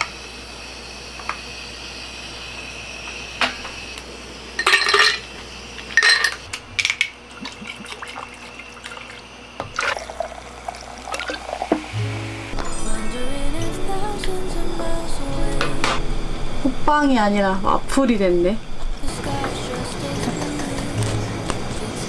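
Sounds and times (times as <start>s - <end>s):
liquid pouring splashes: 7.3s - 11.9s.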